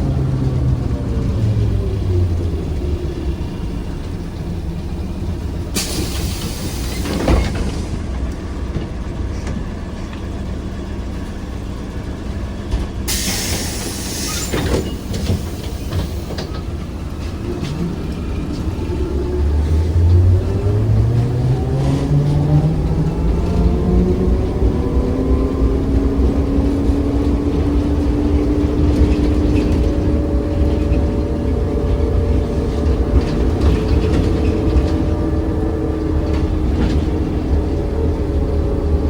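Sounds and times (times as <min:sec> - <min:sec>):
compressed air hissing: 0:13.1 - 0:16.3.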